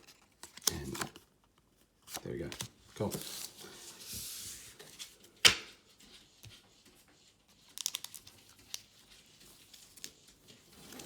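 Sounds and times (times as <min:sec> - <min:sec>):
packaging crinkling and rustling: 0:00.0 - 0:03.6, 0:07.7 - 0:09.0.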